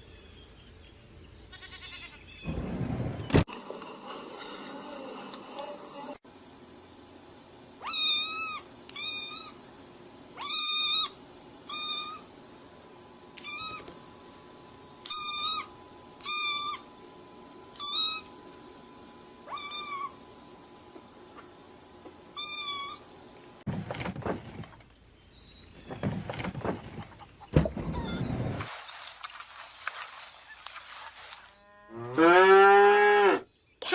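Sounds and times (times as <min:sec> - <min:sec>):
animal high-pitched calls: 0:07.8 - 0:09.6, 0:10.4 - 0:12.3, 0:13.4 - 0:13.9, 0:15.0 - 0:16.9, 0:17.8 - 0:18.3, 0:19.4 - 0:20.2, 0:22.4 - 0:23.0.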